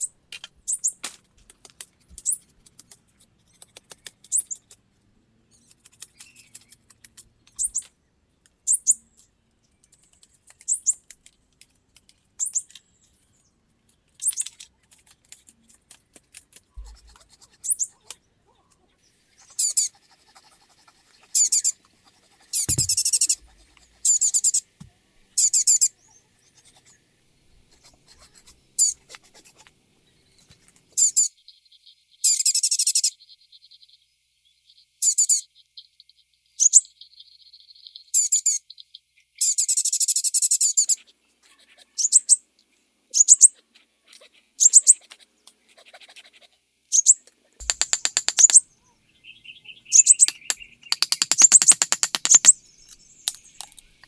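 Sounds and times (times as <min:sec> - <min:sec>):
birds chirping: 0:47.6 - 0:54.0.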